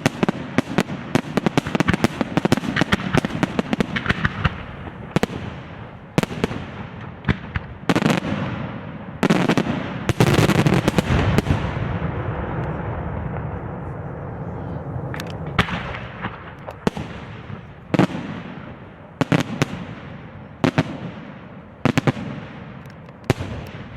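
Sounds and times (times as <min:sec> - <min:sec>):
fireworks bangs: 0:00.0 - 0:23.9
rumbling echo: 0:09.8 - 0:23.9.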